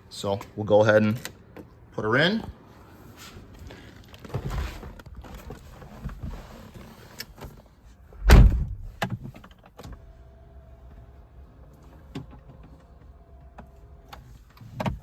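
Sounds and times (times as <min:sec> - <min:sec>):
car door shutting: 0:08.2 - 0:10.0.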